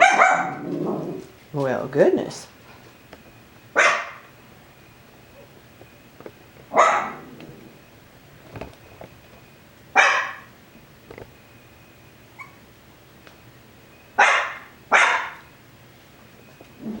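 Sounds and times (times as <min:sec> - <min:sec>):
dog barking: 0:00.0 - 0:00.8, 0:03.8 - 0:04.3, 0:06.7 - 0:07.4, 0:10.0 - 0:10.5, 0:14.2 - 0:15.5.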